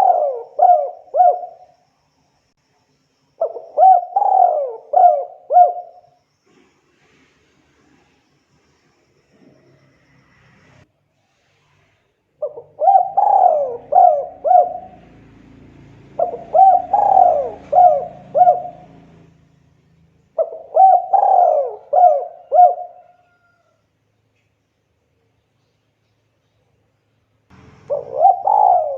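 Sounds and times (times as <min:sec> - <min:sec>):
dove cooing: 0:00.0 - 0:01.7, 0:03.4 - 0:06.1, 0:12.4 - 0:19.5, 0:20.4 - 0:23.6, 0:27.5 - 0:28.9.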